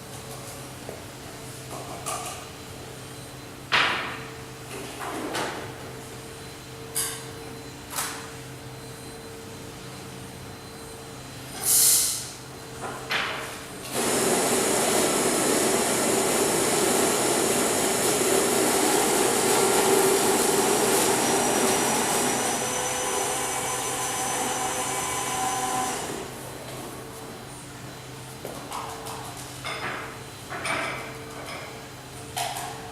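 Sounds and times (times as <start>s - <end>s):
short hissing noises: 11.6s - 12.4s
electric coffee grinder running: 13.9s - 26.3s.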